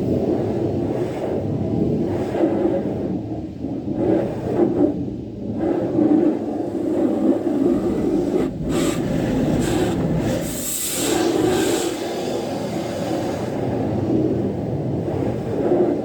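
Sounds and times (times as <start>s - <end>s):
car wash rushing noise: 6.0s - 16.0s
hissing water spray: 6.6s - 14.3s.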